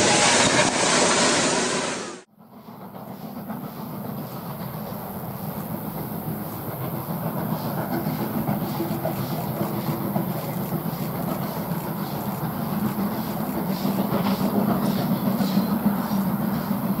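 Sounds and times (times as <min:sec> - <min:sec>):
train running on track: 0:00.0 - 0:17.0
faint rail clatter: 0:02.5 - 0:17.0.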